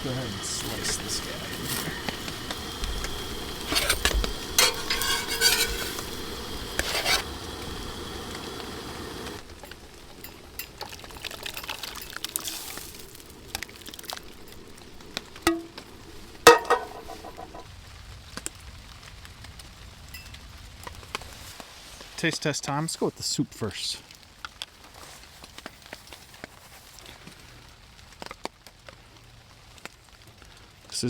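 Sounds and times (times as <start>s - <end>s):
utensil scraping in pan: 0.0s - 17.6s
food sizzling in a pan: 0.0s - 23.4s
utensils clinking on cookware: 0.4s - 7.4s, 9.1s - 17.6s
ringing metal clink: 4.6s - 6.1s, 15.5s - 15.8s, 16.5s - 17.6s.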